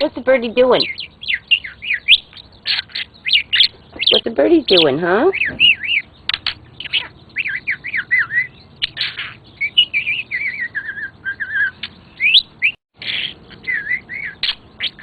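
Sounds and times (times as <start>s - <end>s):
budgie chattering and warbling: 0.0s - 10.0s.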